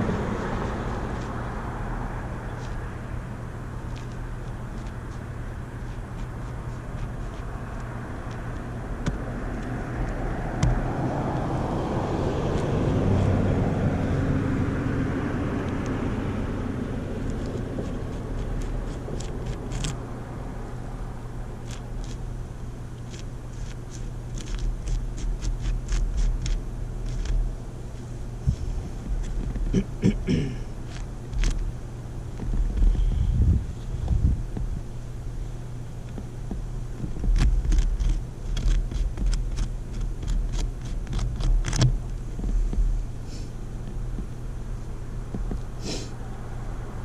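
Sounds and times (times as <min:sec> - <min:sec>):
vehicle passing: 0:00.0 - 0:21.5
steady low hum: 0:00.0 - 0:47.0.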